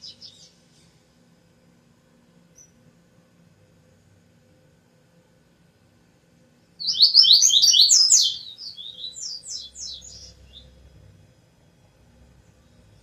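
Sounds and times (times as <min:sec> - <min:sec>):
songbird chirping: 0:00.0 - 0:01.0, 0:02.5 - 0:02.8, 0:06.8 - 0:11.0.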